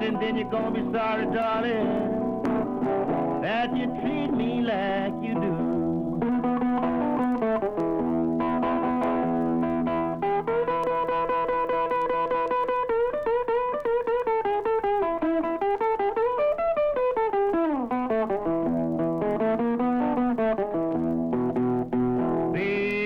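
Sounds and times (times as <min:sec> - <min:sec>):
person singing: 0:00.0 - 0:13.2, 0:22.1 - 0:23.0
blues guitar picked notes: 0:00.0 - 0:23.0.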